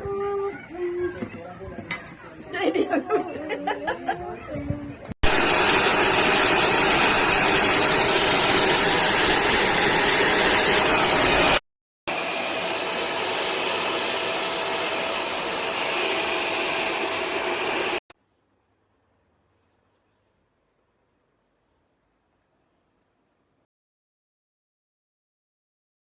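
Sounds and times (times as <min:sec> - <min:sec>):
vacuum cleaner motor running: 0:05.2 - 0:18.0.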